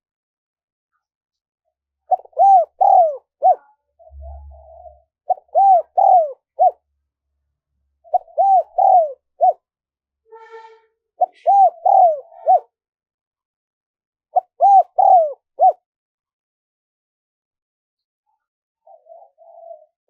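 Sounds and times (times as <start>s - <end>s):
dove cooing: 2.1s - 6.8s, 8.0s - 9.6s, 11.2s - 12.7s, 14.4s - 15.8s, 18.8s - 20.0s.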